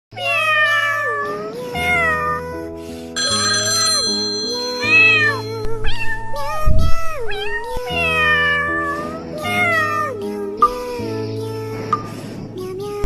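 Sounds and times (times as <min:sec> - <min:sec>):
cat meowing: 0:00.2 - 0:02.4, 0:04.9 - 0:09.0
background music with held notes: 0:00.3 - 0:13.0.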